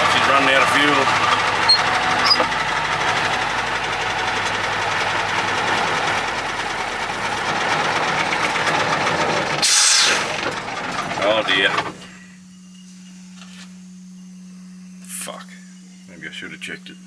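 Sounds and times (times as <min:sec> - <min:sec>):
diesel truck engine running: 0:00.0 - 0:12.3.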